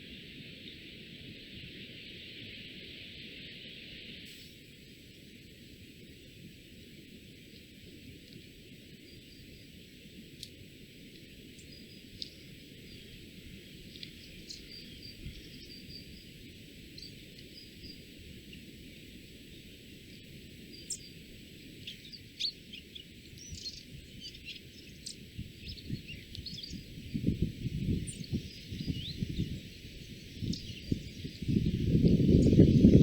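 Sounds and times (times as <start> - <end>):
steady hiss: 0.0 - 33.0.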